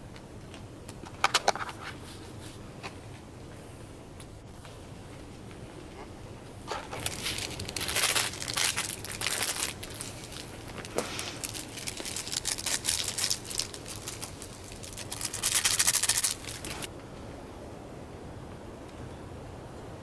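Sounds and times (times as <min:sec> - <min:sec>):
rustling and crinkling: 0:04.6 - 0:16.9.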